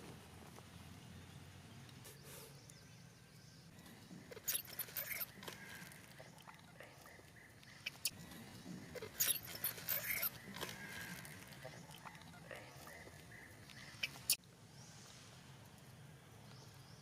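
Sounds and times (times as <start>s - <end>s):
baby monkey squeaking: 4.3s - 5.4s, 8.9s - 10.5s.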